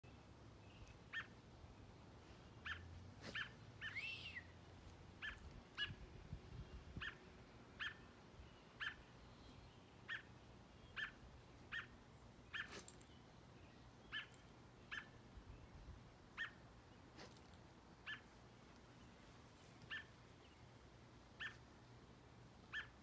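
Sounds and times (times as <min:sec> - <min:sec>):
bird short calls: 0:02.6 - 0:04.6
slurred whistled bird note: 0:03.8 - 0:04.6.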